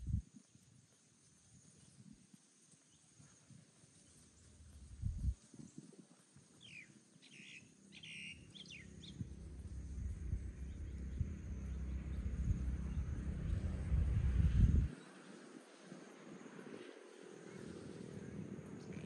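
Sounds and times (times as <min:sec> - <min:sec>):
low rumble: 0:04.7 - 0:05.4, 0:08.7 - 0:15.0
birds chirping: 0:06.6 - 0:13.9.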